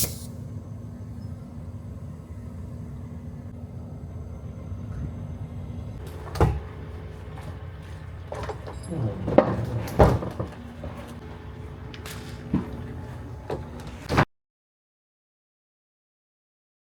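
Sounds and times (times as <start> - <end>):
steady low hum: 0.0 - 14.2
knocks and clunks: 6.0 - 14.2.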